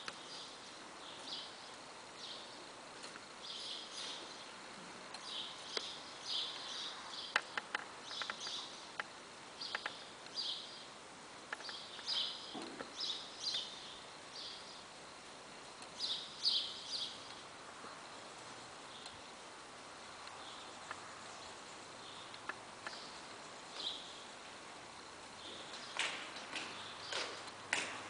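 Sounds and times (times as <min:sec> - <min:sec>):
small birds chirping: 0:00.0 - 0:28.0
faint sharp clicks: 0:09.7 - 0:10.4.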